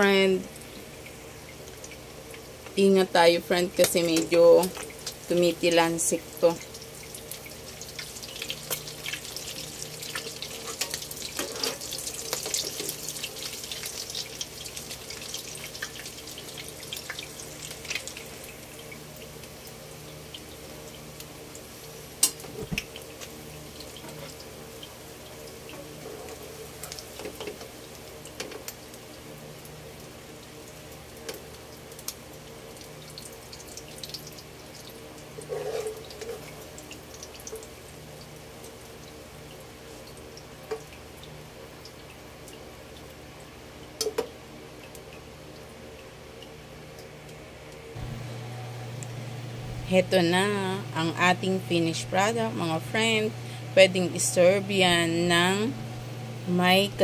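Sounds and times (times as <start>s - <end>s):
patties sizzling in oil: 0.0s - 57.0s
metal spatula scraping: 10.7s - 12.0s, 35.4s - 36.5s.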